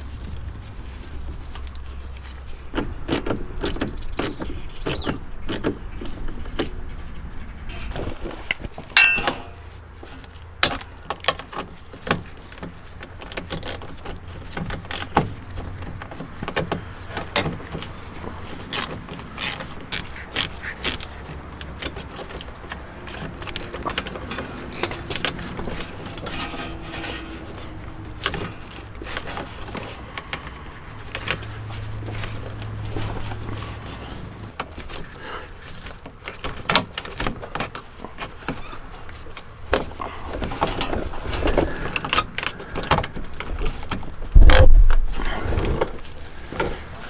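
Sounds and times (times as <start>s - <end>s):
tools and metal parts clinking: 8.5s - 44.3s.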